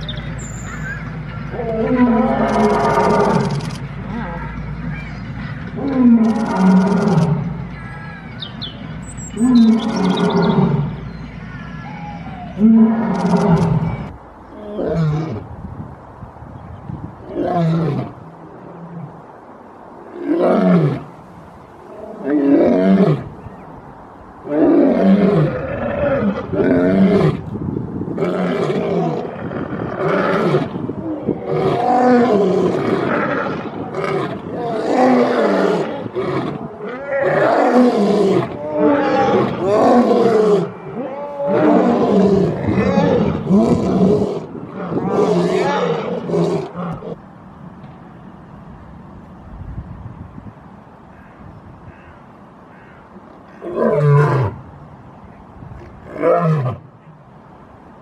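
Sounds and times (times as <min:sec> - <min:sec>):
lion roaring: 0:31.3 - 0:47.2.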